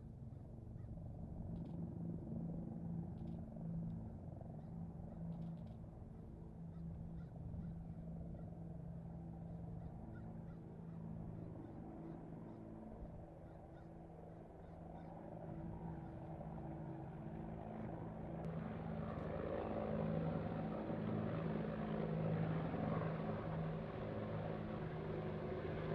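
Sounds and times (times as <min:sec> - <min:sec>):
low engine drone: 0:18.0 - 0:25.9.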